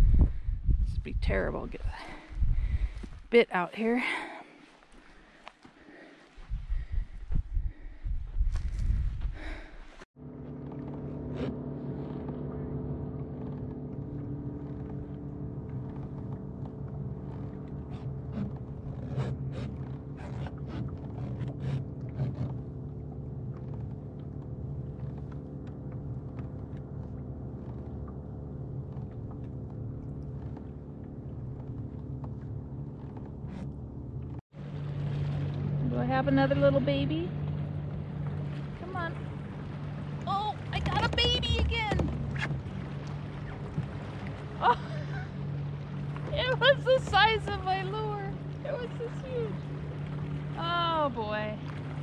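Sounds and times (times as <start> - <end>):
engine droning hum: 9.4 - 52.0.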